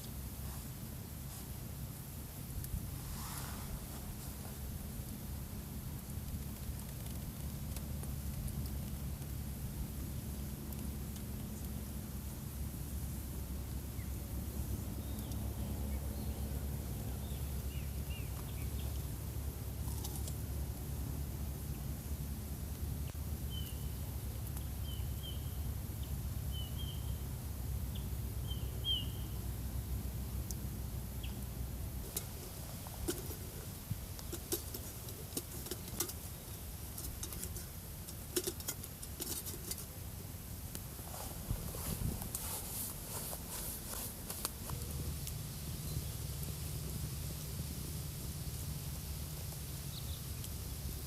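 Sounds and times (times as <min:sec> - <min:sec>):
sharp clicks and crackles: 0:05.9 - 0:11.8, 0:19.8 - 0:20.4, 0:31.4 - 0:40.9, 0:41.7 - 0:47.0
steady low rumble: 0:39.7 - 0:51.0.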